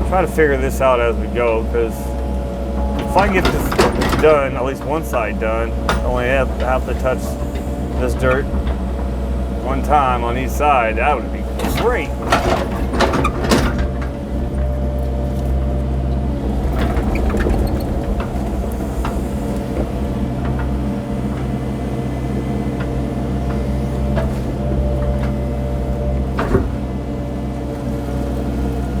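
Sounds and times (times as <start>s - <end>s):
excavator diesel engine running: 0.0s - 29.0s
clicks and knocks: 2.8s - 7.7s.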